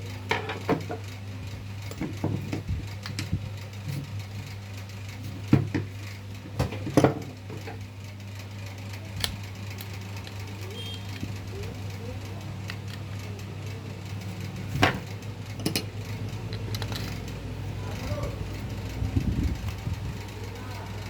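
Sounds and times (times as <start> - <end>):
steady low hum: 0.0 - 21.0
metal clinks and knocks: 1.8 - 4.0, 14.8 - 17.3.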